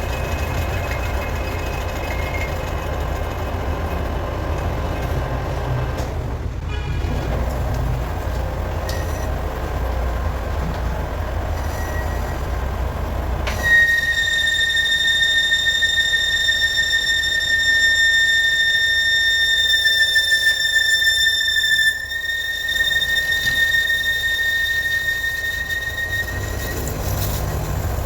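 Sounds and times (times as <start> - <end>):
metal lathe rumbling: 0.0 - 28.0
cutting tool squealing: 13.5 - 28.0.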